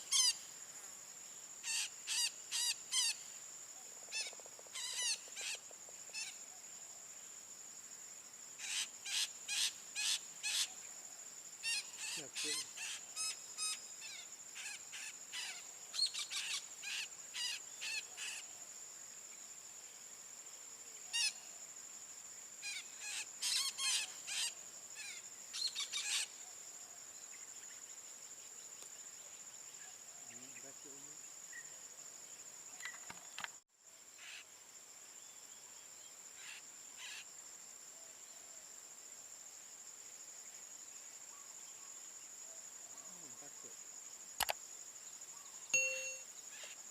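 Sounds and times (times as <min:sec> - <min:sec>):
high-pitched insect drone: 0:43.0 - 0:46.9.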